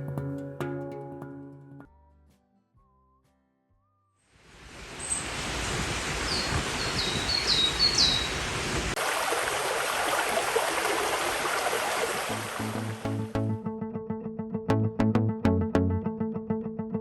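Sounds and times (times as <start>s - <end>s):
flowing water rushing: 4.5s - 13.3s
small bird chirping: 5.0s - 5.3s, 6.1s - 8.8s.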